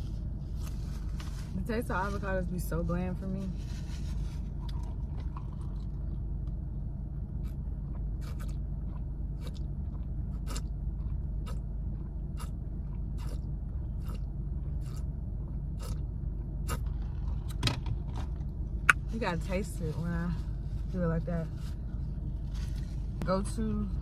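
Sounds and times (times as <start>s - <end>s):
car engine idling hum: 0.0s - 24.0s
person chewing crunchy food: 4.4s - 6.6s, 7.3s - 17.6s.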